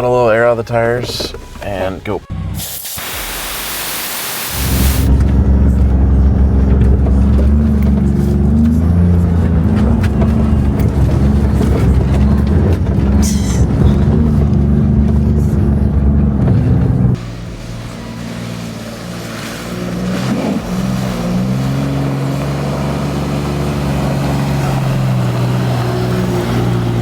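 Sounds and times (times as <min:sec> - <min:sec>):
truck engine running: 0:00.0 - 0:02.8, 0:04.5 - 0:27.0.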